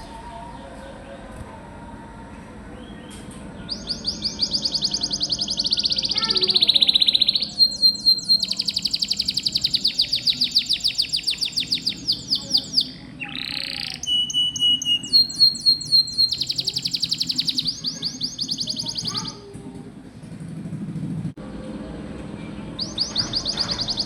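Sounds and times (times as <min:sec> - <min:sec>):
canary singing trills: 0:02.8 - 0:19.4, 0:22.8 - 0:24.0.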